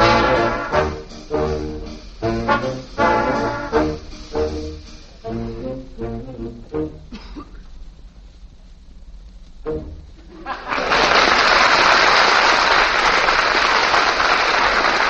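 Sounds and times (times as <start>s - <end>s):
swing dance band playing: 0.0s - 7.1s, 9.6s - 10.5s
brass and trombone chords: 0.0s - 7.4s, 9.6s - 10.3s.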